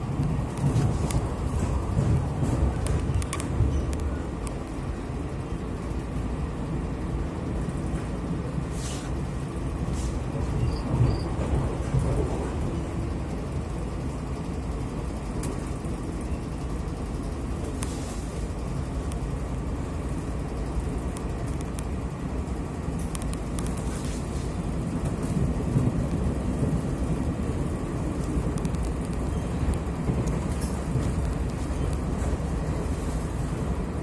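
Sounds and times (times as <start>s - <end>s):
train rumble inside carriage: 0.0s - 34.0s.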